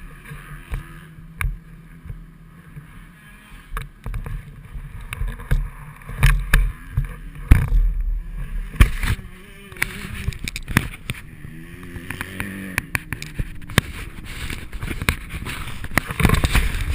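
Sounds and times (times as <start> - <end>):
dirt bike engine: 0.0 - 16.9
knocks and thumps on microphone: 8.7 - 9.2
wind buffeting microphone: 13.4 - 16.9.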